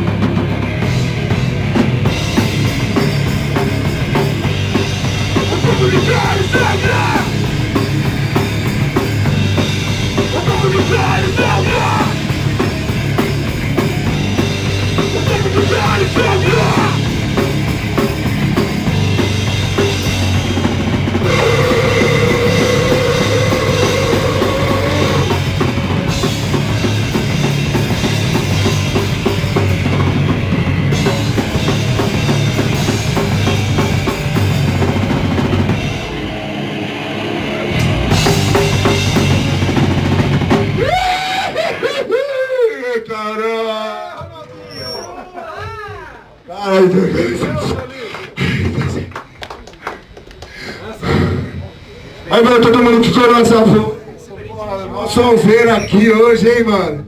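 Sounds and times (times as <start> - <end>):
bass guitar: 0.0 - 41.4
busy drum kit: 0.0 - 41.7
distorted electric guitars: 0.0 - 41.7
sustained guitar note: 21.2 - 25.6.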